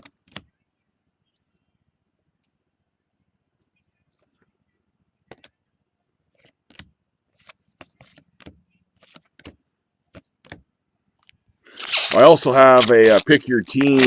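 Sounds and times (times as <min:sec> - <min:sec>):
card packs rustling: 0:11.7 - 0:14.0.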